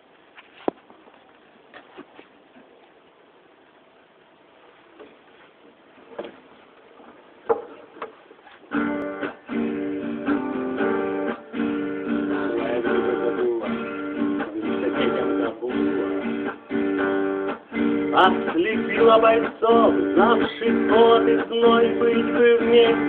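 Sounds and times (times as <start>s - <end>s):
acoustic guitar plucked notes: 8.7s - 23.0s
acoustic guitar strummed chords: 8.7s - 23.0s.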